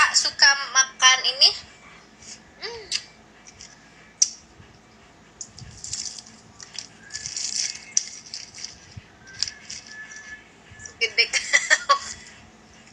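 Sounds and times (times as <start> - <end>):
light rustling and rattling: 5.3 - 11.0.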